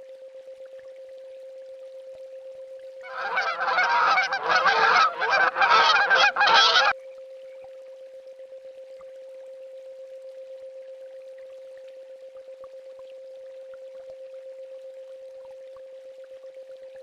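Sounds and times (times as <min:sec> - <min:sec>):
swans honking: 0:03.1 - 0:07.0.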